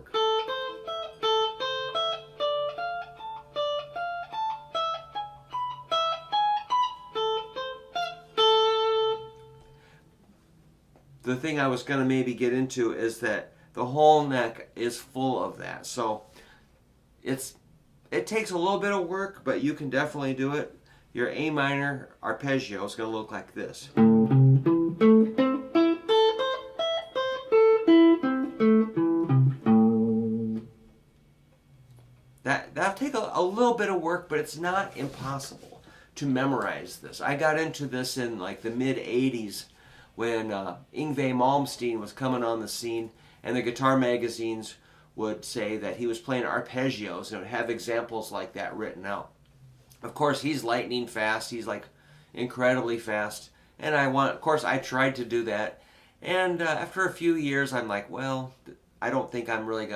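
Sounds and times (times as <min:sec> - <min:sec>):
guitar picking arpeggio notes: 0:00.1 - 0:09.7, 0:24.0 - 0:30.9.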